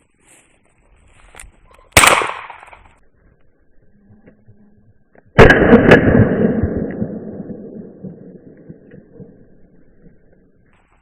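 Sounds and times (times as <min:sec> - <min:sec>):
shotgun shot: 0:02.0 - 0:02.8, 0:05.4 - 0:07.4.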